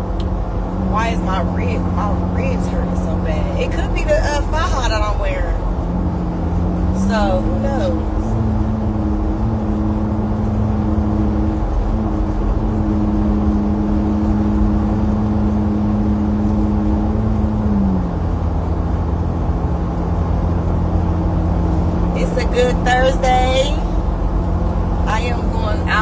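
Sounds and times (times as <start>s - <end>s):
car engine humming: 0.0s - 26.0s
road rumble: 0.0s - 26.0s.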